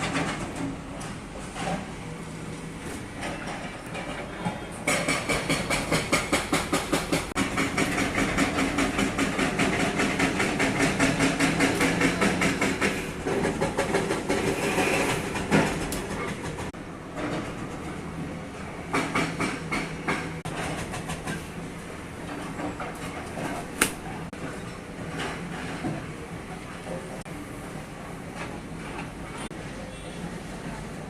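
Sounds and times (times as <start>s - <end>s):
rhythmic mechanical clatter: 4.8s - 16.8s.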